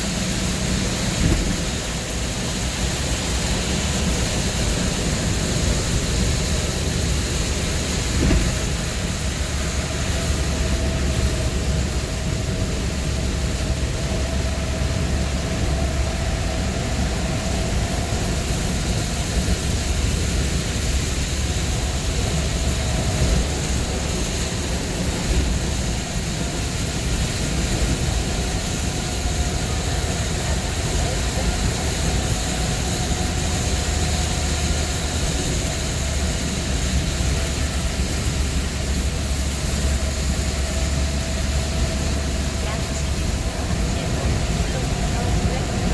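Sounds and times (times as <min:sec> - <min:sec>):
vehicle cabin road rumble: 0:00.0 - 0:45.9.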